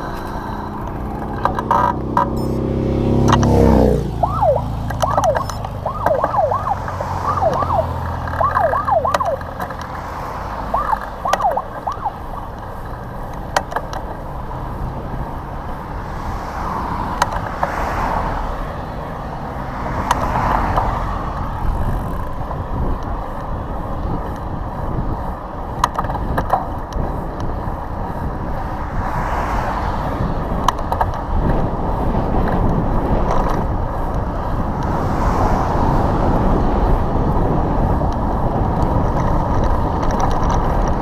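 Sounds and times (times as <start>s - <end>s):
wind and road rush: 0.0s - 41.0s
police siren yelping: 4.1s - 9.6s, 10.6s - 12.6s.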